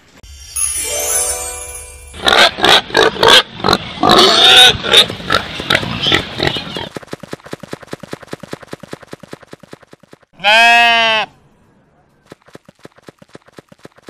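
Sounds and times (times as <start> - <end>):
pig grunting and squealing: 2.2 - 6.9.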